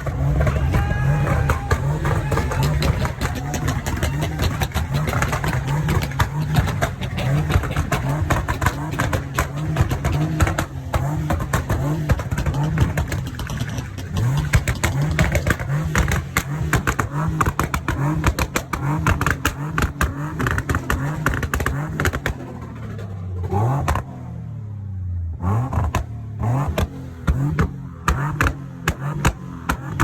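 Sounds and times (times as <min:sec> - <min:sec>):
car engine idling: 0:00.0 - 0:30.0
car engine revving: 0:00.0 - 0:30.0.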